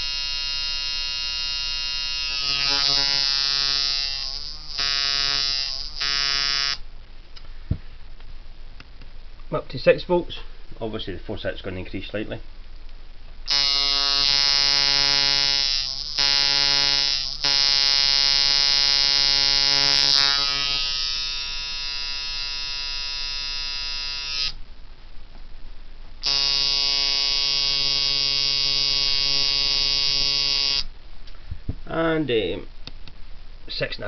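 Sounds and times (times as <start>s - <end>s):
tattoo machine buzzing: 0.0s - 6.8s, 13.5s - 24.6s, 26.2s - 30.9s.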